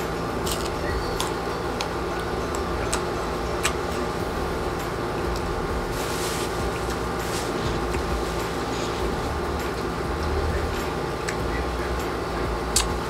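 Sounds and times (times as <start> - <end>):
background hum: 0.0 - 13.0
crunching and chewing mango: 0.4 - 4.0.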